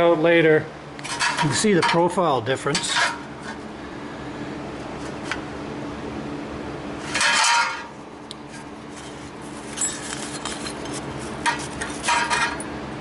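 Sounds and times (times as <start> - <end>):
steady low hum: 0.0 - 13.0
sheet metal clinking and clattering: 1.1 - 2.1, 7.1 - 7.9, 9.8 - 12.7.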